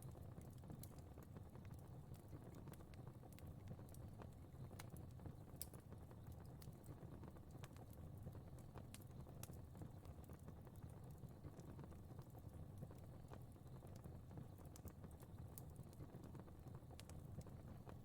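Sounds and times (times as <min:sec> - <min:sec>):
low rumble of flames: 0:00.0 - 0:18.0
fire crackling: 0:00.1 - 0:18.0.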